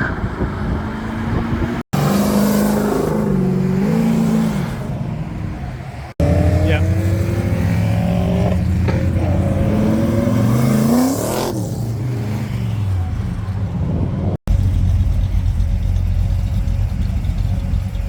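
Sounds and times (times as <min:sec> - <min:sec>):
car engine revving: 0:00.2 - 0:18.0
car engine running at low revs: 0:13.0 - 0:18.0.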